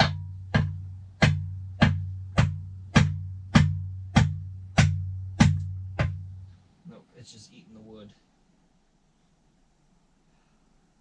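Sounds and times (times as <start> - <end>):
hammer striking wooden block: 0.0 - 6.2.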